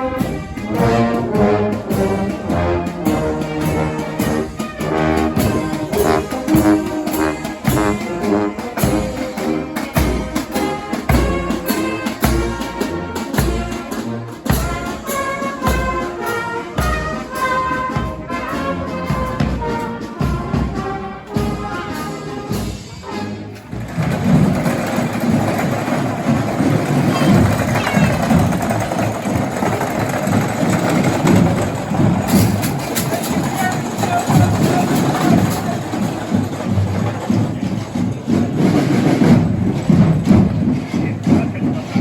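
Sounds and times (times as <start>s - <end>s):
brass band playing: 0.0s - 42.0s
drum hits: 23.7s - 42.0s.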